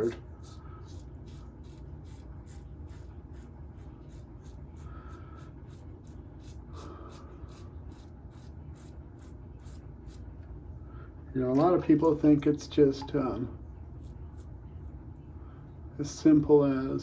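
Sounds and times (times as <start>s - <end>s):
shaving brush scrubbing lathered skin: 0.0s - 10.3s.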